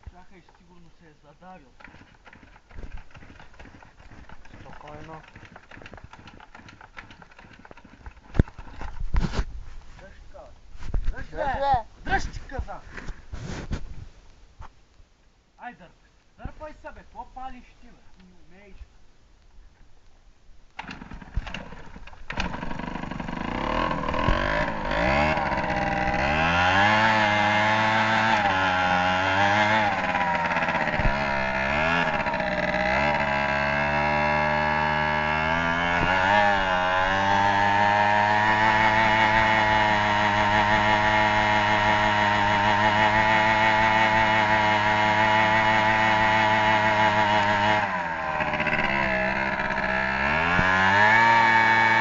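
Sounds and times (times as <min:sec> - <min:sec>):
starter clicks: 0:01.7 - 0:09.1, 0:20.7 - 0:26.4
motorcycle engine revving: 0:01.8 - 0:08.9, 0:20.8 - 0:52.0.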